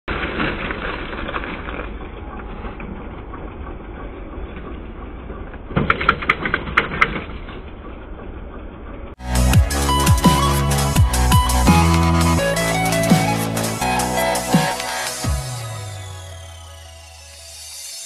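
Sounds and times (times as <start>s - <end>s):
engine pops and cracks: 0.1s - 9.2s.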